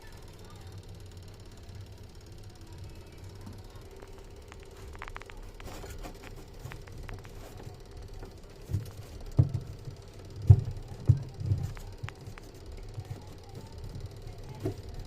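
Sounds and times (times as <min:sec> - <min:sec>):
washing machine spinning: 0:00.0 - 0:15.0
heavy irregular thumps: 0:04.5 - 0:14.8.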